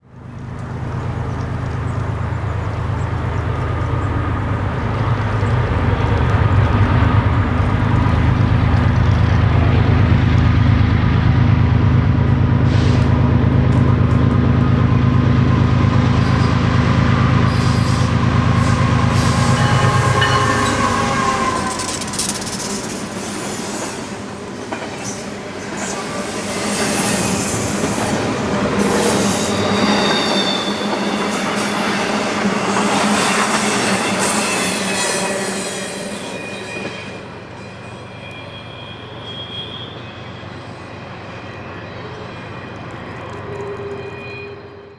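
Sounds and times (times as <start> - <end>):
locomotive engine drone: 0.1 - 24.6
railcar wheel clatter: 0.1 - 44.9.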